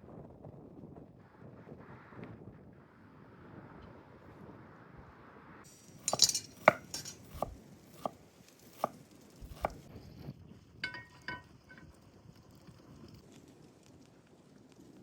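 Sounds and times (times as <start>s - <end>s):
ringing metallic clinks: 5.7s - 7.6s, 10.8s - 11.9s
chopping strokes: 6.0s - 9.9s.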